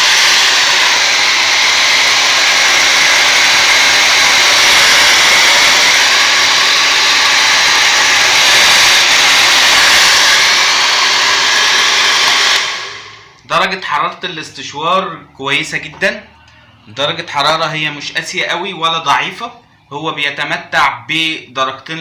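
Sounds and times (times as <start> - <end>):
hair dryer blowing air: 0.0 - 13.4.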